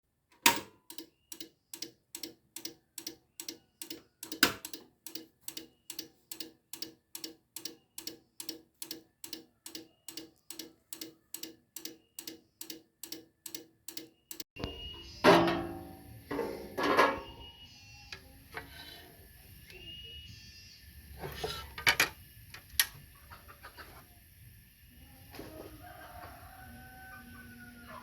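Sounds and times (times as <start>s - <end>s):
steady regular ticking: 0.8s - 14.5s.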